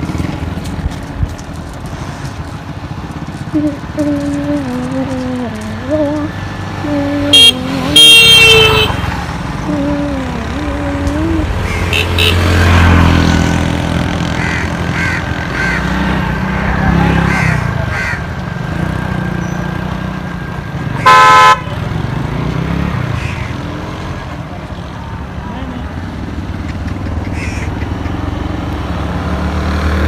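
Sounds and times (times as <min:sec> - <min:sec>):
vehicle engine passing: 0:00.0 - 0:30.0
vehicle horn: 0:07.3 - 0:09.2, 0:11.9 - 0:12.6, 0:21.0 - 0:21.8.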